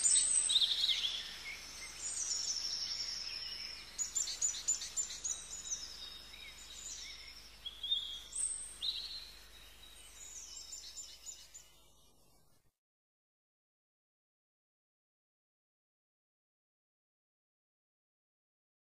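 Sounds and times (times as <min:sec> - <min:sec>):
songbirds chirping and trilling: 0:00.0 - 0:12.5
faint outdoor hiss: 0:00.0 - 0:12.8.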